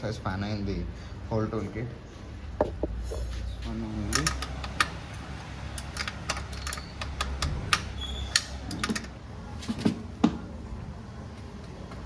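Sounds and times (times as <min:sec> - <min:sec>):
spanner clicking on metal bolt: 0:04.1 - 0:05.0, 0:05.7 - 0:09.2.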